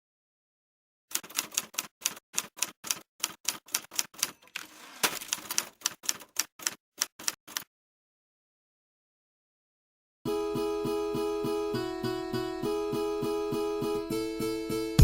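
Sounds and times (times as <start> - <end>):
typewriter rasping: 1.1 - 7.6
typewriter keys clacking: 1.1 - 7.7.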